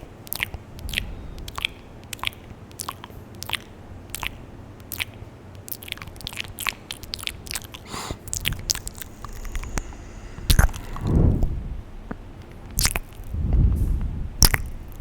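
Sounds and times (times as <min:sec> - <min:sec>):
wet mouth clicks and smacks: 0:00.2 - 0:11.2, 0:12.7 - 0:13.3, 0:14.4 - 0:15.0
breathy hiss: 0:07.8 - 0:12.4
brief low rumble: 0:08.5 - 0:12.5.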